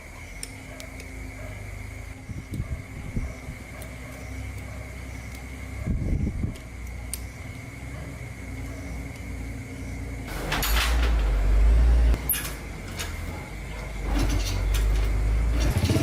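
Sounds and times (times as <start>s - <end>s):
small motorbike engine running: 14.1s - 16.0s.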